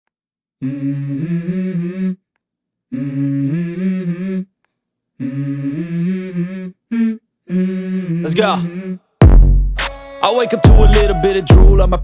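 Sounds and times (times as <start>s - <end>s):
person humming: 5.2s - 9.0s, 10.2s - 12.0s.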